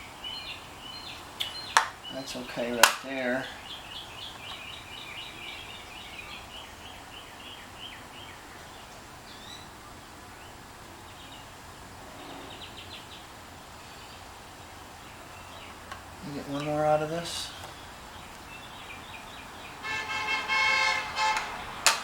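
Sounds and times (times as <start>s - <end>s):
songbirds chirping: 0.0s - 22.0s
steady background hiss: 0.0s - 22.0s
bird trill: 3.2s - 21.8s.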